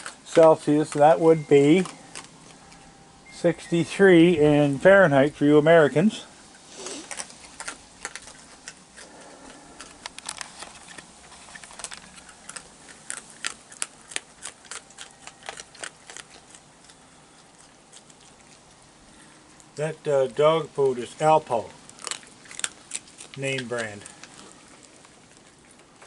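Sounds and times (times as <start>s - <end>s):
raccoons crunching dry food: 0.0s - 26.0s.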